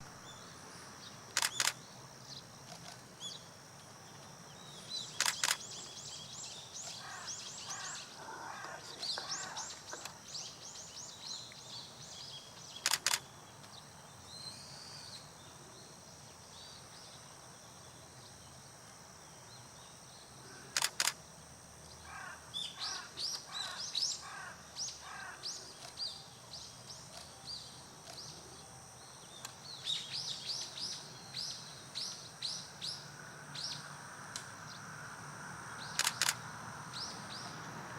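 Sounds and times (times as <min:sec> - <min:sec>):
camera shutter double click: 0:01.4 - 0:01.8, 0:05.2 - 0:05.6, 0:12.8 - 0:13.2, 0:20.8 - 0:21.2, 0:36.0 - 0:36.4.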